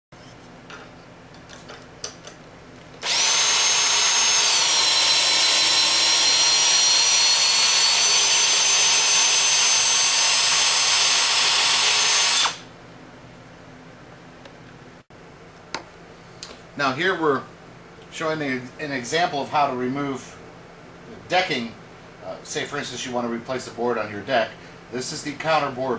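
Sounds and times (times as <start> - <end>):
cordless drill whine: 3.0 - 12.7.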